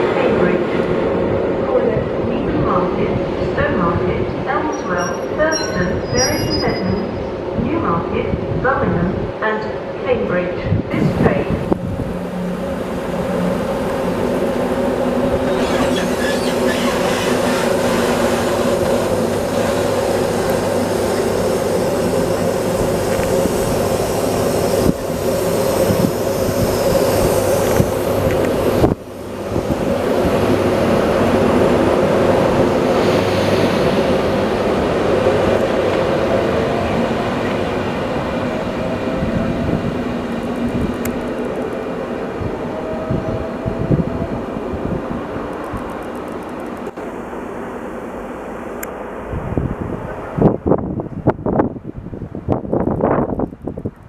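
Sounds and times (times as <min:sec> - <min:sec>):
wheels rumbling and squealing on rails: 0:00.0 - 0:08.7, 0:10.6 - 0:54.0
electric locomotive hum: 0:00.0 - 0:54.0.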